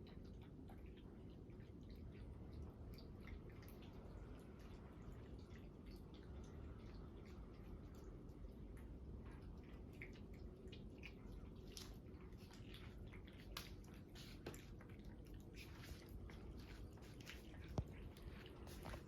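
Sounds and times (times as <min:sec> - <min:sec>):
cats chewing food: 0:00.0 - 0:19.0.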